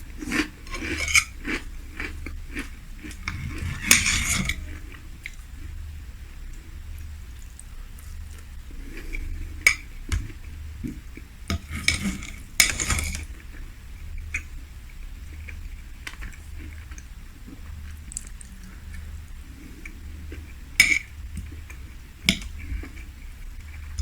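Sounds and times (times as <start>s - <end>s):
quiet chewing: 6.5s - 11.3s, 15.3s - 20.6s.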